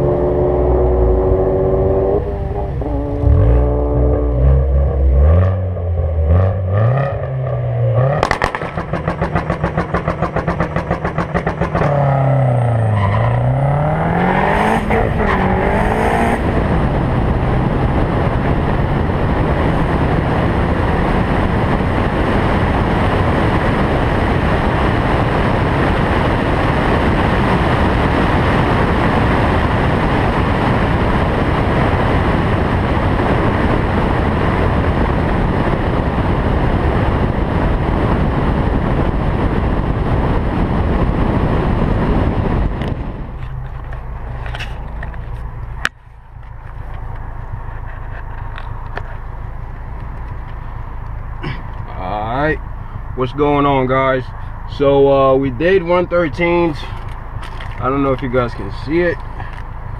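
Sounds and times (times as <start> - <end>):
turbo whine: 0.0 - 8.5
car engine revving: 0.0 - 45.9
wind and road noise: 0.0 - 59.9.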